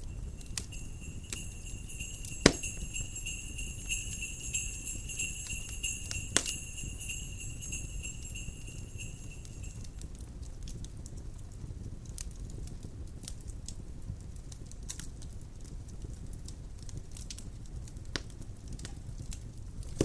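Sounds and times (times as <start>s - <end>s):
sleigh bells ringing: 0.0s - 10.0s
wood fire crackling: 0.0s - 20.0s.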